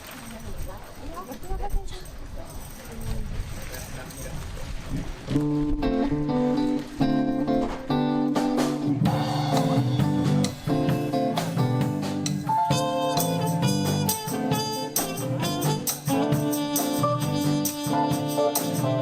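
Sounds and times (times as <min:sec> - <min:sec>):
guitar: 0:05.3 - 0:19.0
live band playing: 0:05.3 - 0:19.0
drum kit: 0:05.4 - 0:19.0.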